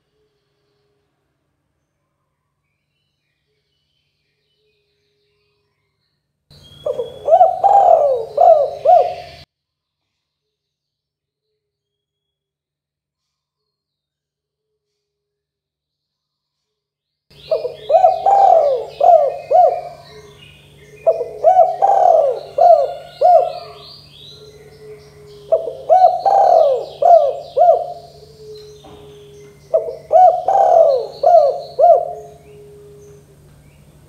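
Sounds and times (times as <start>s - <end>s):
small birds chirping: 2.7s - 9.5s, 17.3s - 34.0s
dove cooing: 6.8s - 9.4s, 17.4s - 33.4s.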